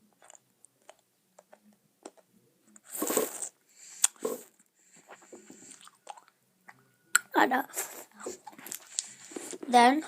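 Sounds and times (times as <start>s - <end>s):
mouth chewing sounds: 5.6s - 7.3s.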